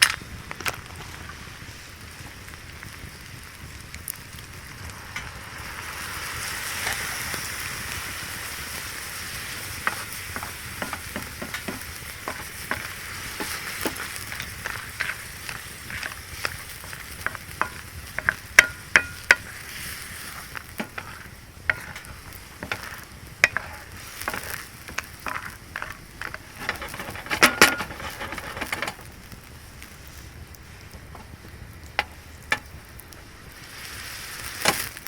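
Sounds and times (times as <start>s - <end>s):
food sizzling in a pan: 0.0s - 35.0s
utensil scraping a pan: 6.8s - 29.1s, 33.6s - 35.0s.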